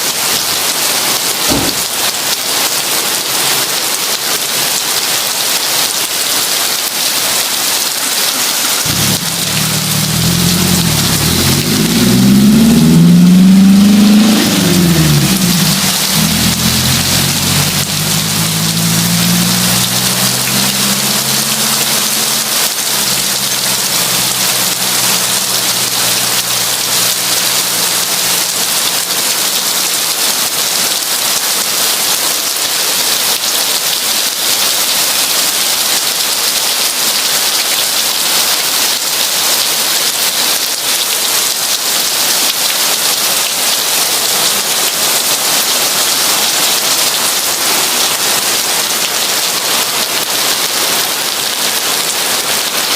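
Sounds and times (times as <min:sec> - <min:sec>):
heavy rain: 0:00.0 - 0:52.9
low rumble: 0:08.9 - 0:27.4.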